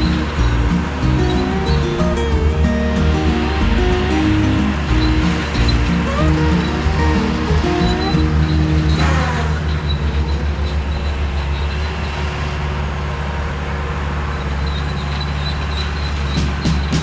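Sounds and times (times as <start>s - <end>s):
mower engine running: 0.0s - 11.6s.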